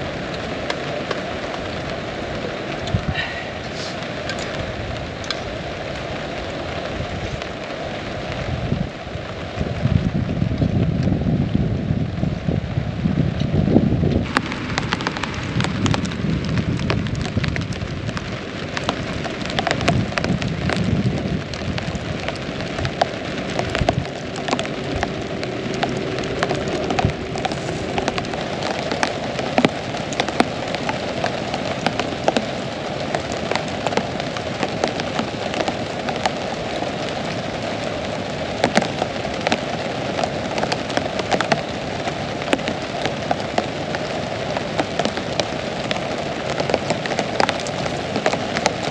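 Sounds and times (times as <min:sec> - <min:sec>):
heavy rain falling: 0:00.0 - 0:48.9
low rumble: 0:19.6 - 0:31.2.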